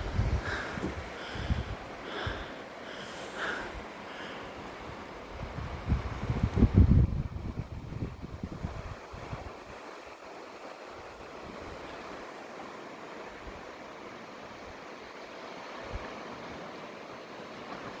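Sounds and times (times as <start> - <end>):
wind buffeting microphone: 0.0 - 2.5, 3.1 - 9.8
sea surf on the shore: 0.0 - 18.0.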